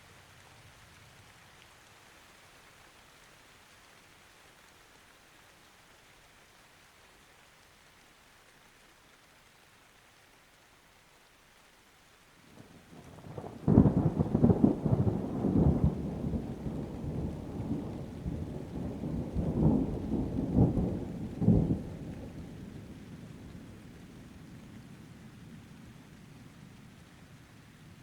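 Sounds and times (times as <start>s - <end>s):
light rain: 0.0s - 28.0s
rolling thunder: 13.0s - 23.9s.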